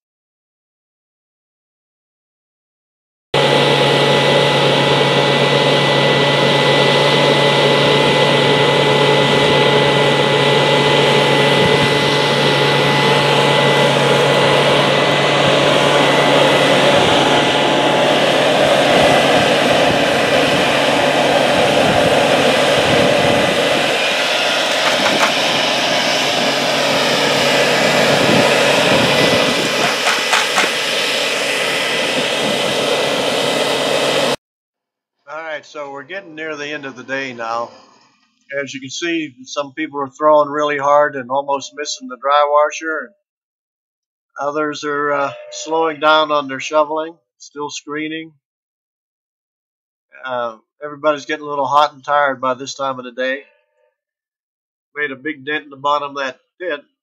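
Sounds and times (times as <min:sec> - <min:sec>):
engine-driven blower rushing air: 0:03.4 - 0:34.4.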